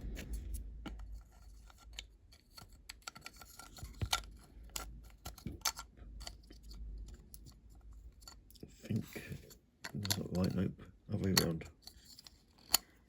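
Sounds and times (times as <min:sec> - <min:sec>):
steady low hum: 0:00.0 - 0:02.4.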